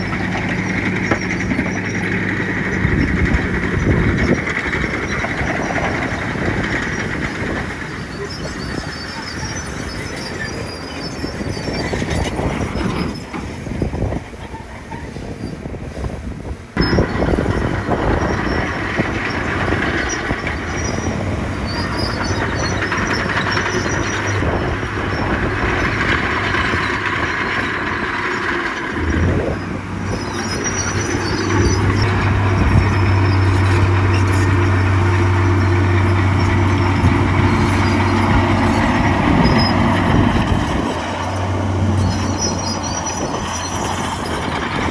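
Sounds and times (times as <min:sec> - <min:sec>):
diesel engine running: 0:00.0 - 0:44.9
steel tracks squealing and clanking: 0:00.0 - 0:44.9
low engine drone: 0:16.8 - 0:44.9.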